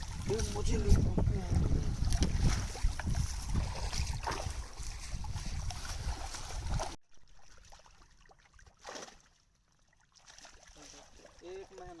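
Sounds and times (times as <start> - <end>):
wind buffeting microphone: 0.0 - 7.0
sea water noise: 0.0 - 12.0.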